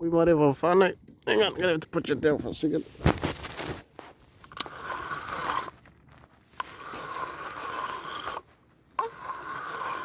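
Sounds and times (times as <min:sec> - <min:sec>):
person speaking: 0:00.0 - 0:03.0
fishing reel grinding: 0:04.4 - 0:05.8, 0:06.6 - 0:10.0.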